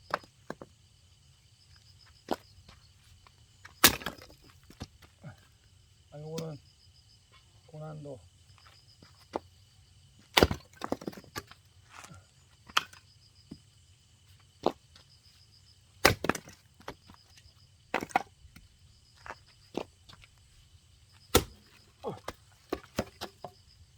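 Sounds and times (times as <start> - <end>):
axe chopping wood: 3.8 - 4.9, 10.3 - 11.2, 16.0 - 17.0, 17.9 - 18.7, 21.3 - 23.6
wood cracking: 21.3 - 23.3.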